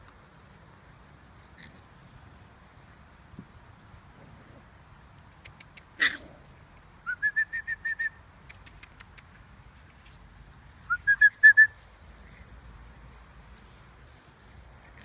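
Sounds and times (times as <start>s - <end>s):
faint clicks: 5.3s - 5.9s, 8.4s - 9.4s
songbird whistling: 7.0s - 8.2s, 10.9s - 11.8s.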